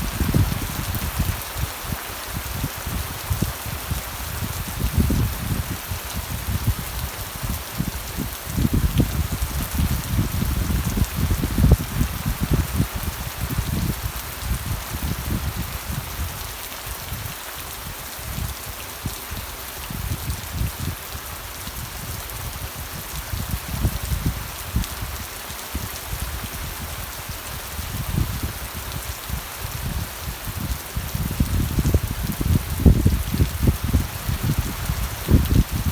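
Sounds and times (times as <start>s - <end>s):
steady rain falling: 0.0s - 35.9s.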